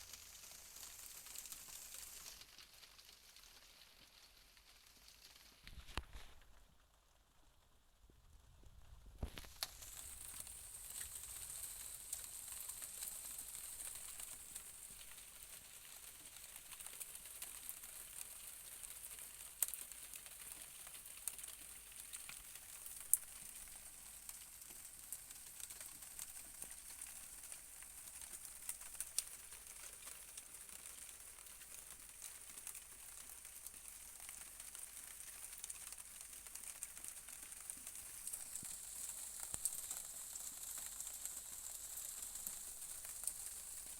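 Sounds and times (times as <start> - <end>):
rain hissing: 9.2 - 15.2, 34.2 - 43.9
drops ticking on hard surface: 32.0 - 41.4.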